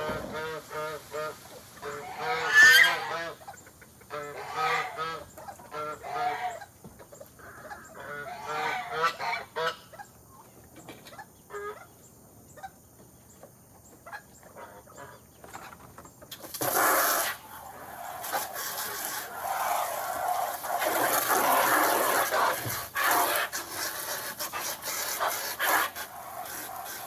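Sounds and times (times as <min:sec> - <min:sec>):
geese honking: 0:00.0 - 0:06.7, 0:07.4 - 0:10.1, 0:16.7 - 0:27.0.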